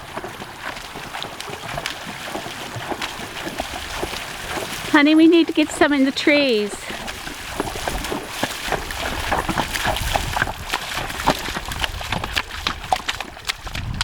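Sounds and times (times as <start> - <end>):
horse hooves clopping: 0.0 - 14.0
wind rumbling on microphone: 6.9 - 14.0.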